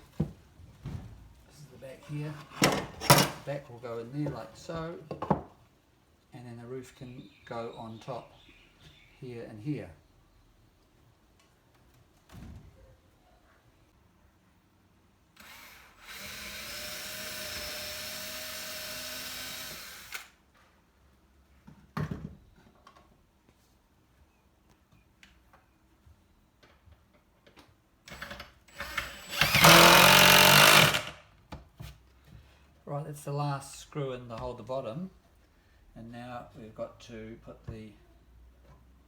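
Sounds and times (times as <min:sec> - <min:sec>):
power drill driving screws: 0:15.4 - 0:20.4, 0:28.1 - 0:31.2.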